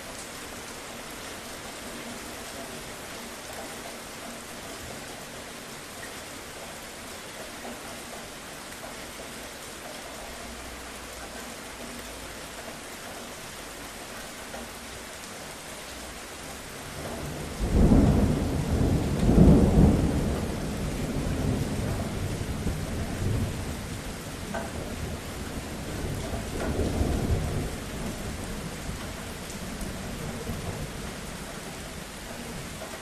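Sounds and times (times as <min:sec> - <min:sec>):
steady rain falling: 0:00.0 - 0:33.0
rumble of thunder: 0:16.8 - 0:33.0.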